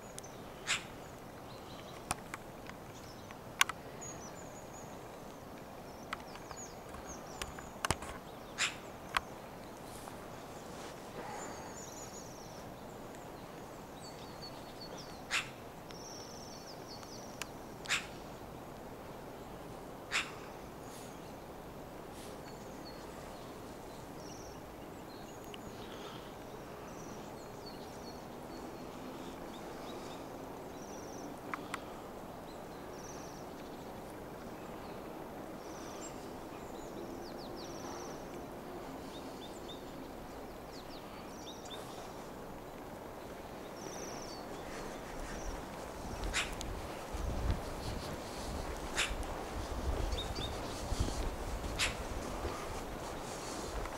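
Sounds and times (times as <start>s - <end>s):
city noise hum: 0.0s - 53.9s
small birds chirping: 0.0s - 53.9s
sharp single calls or clicks: 46.1s - 46.7s, 48.8s - 49.3s, 51.7s - 52.0s.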